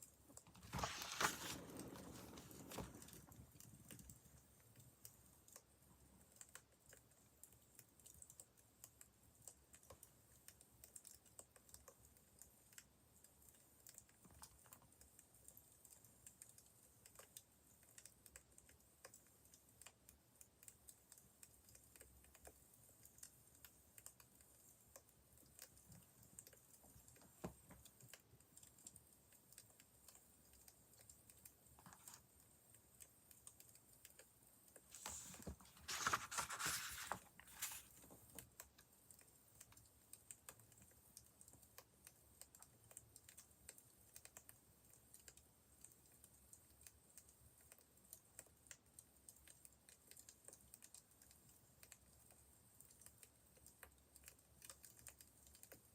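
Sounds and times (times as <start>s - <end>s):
wood fire crackling: 0.3s - 5.0s.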